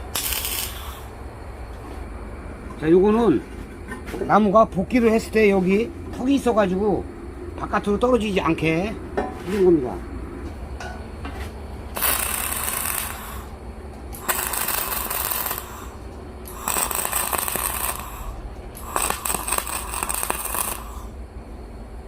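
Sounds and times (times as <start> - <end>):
arc welding crackling: 0.0 - 1.2, 11.9 - 21.2.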